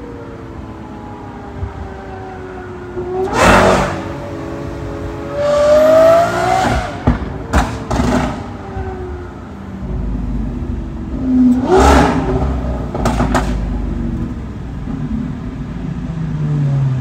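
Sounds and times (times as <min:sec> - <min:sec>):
sports car engine revving: 0:03.0 - 0:09.2, 0:09.8 - 0:17.0
exhaust cracks: 0:09.8 - 0:15.4.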